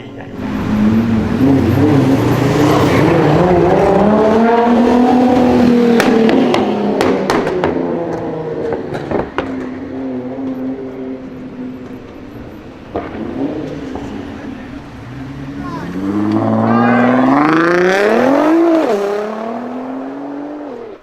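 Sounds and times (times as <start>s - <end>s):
car engine revving hard: 0.4s - 9.5s, 13.0s - 21.0s
exhaust cracks and pops: 6.0s - 9.8s.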